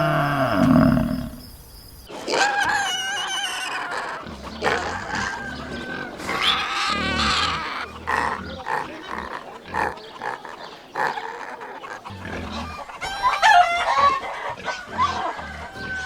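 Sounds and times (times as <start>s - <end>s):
pigs grunting: 0.0s - 1.4s, 2.1s - 13.0s
pig squeals: 2.1s - 14.0s.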